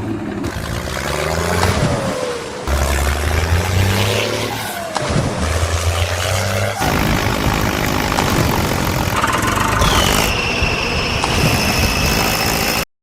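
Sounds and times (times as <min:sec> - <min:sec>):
vehicle motor noise: 0:00.0 - 0:12.9
high whine: 0:06.8 - 0:12.8.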